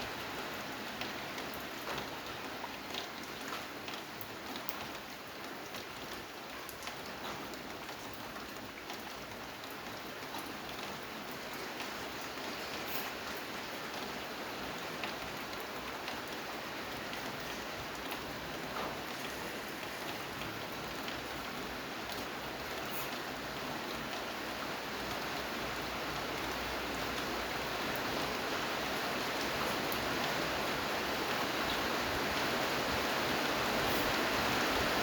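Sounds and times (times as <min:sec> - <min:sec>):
steady rain falling: 0:00.0 - 0:35.0
faint raindrop ticks: 0:01.0 - 0:14.2, 0:14.9 - 0:24.3.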